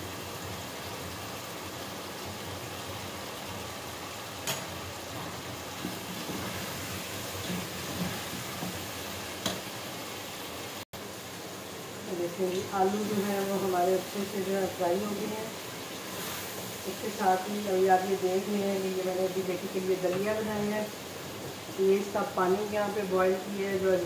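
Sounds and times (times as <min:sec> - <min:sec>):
frying sizzle: 0:00.0 - 0:24.0.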